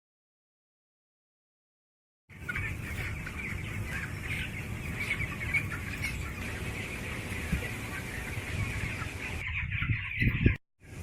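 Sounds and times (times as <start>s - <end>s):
chickens chirping and cheeping: 2.3s - 11.0s.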